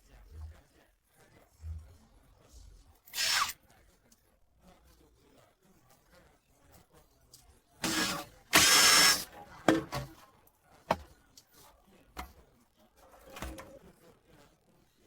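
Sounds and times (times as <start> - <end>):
power tool whine: 7.8 - 9.2.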